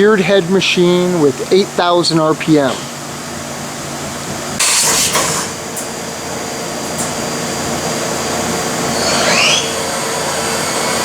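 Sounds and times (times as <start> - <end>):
machine-shop hum: 0.0 - 11.0
burst of hiss: 4.6 - 5.5
rising whine: 6.2 - 11.0.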